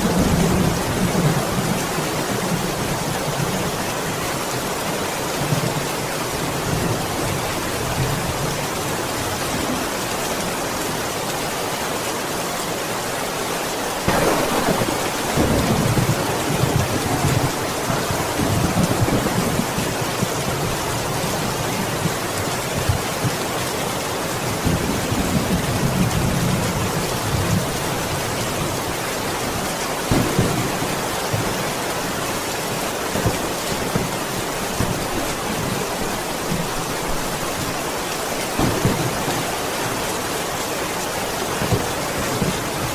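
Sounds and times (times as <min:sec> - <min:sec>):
heavy rain: 0:00.0 - 0:42.9
thunder cracks and rumbles: 0:14.1 - 0:21.5, 0:30.1 - 0:31.5.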